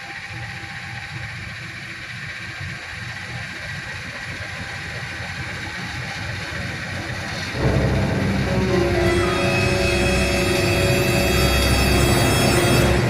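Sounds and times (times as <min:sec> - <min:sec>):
vehicle rumble: 0:05.6 - 0:13.0.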